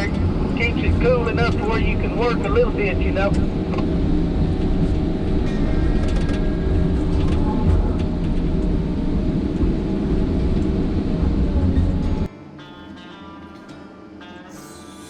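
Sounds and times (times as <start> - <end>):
vehicle engine and road rumble: 0.0 - 12.3
acoustic guitar music: 11.6 - 15.0.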